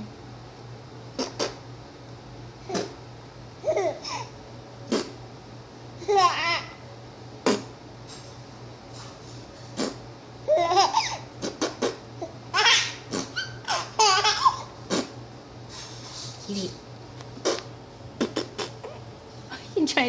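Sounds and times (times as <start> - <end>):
baby laughing: 6.0 - 6.8, 10.5 - 14.7
adult making popping noise: 17.4 - 19.0.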